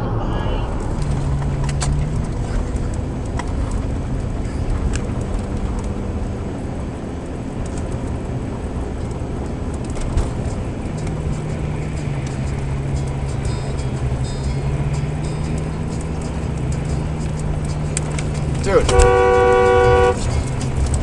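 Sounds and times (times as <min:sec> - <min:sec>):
car engine inside moving car: 0:00.0 - 0:21.0
road noise: 0:00.0 - 0:21.0.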